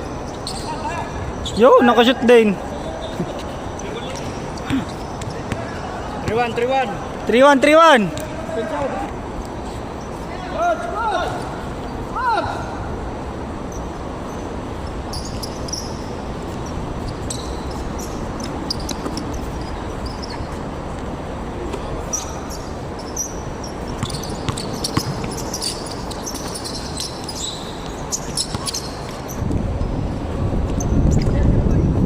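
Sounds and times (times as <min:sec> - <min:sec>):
sneaker squeaks: 0:00.0 - 0:01.6, 0:02.6 - 0:06.7, 0:08.1 - 0:10.5, 0:13.7 - 0:21.0, 0:21.7 - 0:31.4
basketball bouncing on court: 0:04.6 - 0:06.7, 0:23.9 - 0:27.1, 0:27.8 - 0:29.1.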